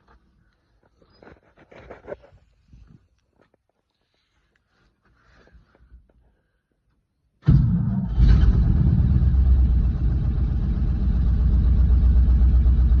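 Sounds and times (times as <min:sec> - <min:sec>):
truck engine starting and rumbling: 0:07.4 - 0:13.0.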